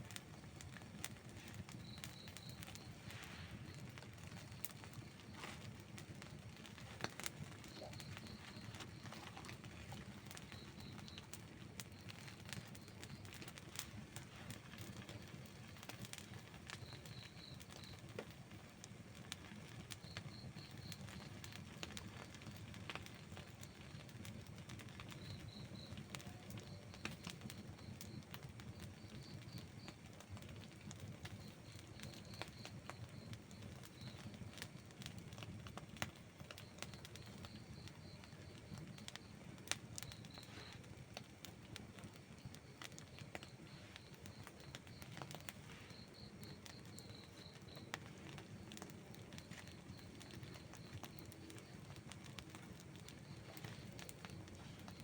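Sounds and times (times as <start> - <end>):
campfire crackling and popping: 0.0 - 55.0
faint high chirping trills: 7.4 - 13.6.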